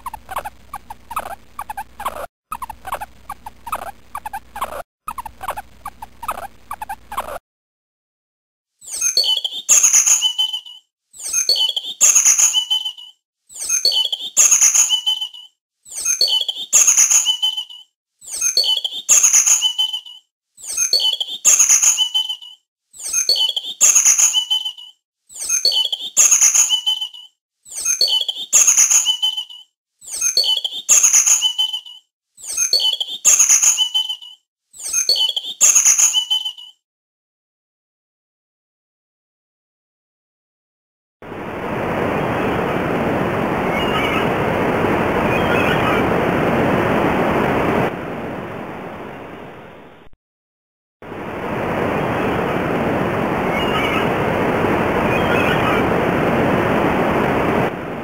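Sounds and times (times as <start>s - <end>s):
small animal chirping call: 0.0s - 7.4s, 8.8s - 36.8s.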